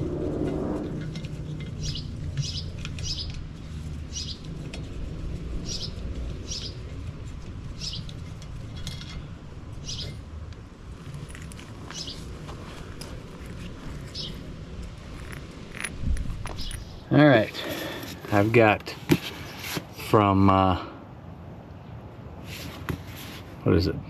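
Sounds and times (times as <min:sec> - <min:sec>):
steady low rumble: 0:00.0 - 0:17.5
bird chirping: 0:01.7 - 0:03.4, 0:04.1 - 0:04.5, 0:05.6 - 0:06.9, 0:07.8 - 0:08.2, 0:09.8 - 0:10.2, 0:11.9 - 0:12.3, 0:14.1 - 0:14.4, 0:16.5 - 0:17.0.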